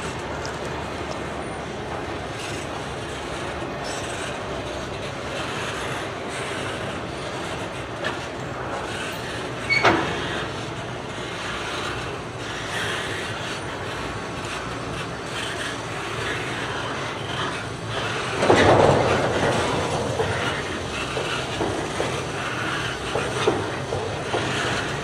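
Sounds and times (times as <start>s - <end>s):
train rumbling on rails: 0.0s - 25.0s.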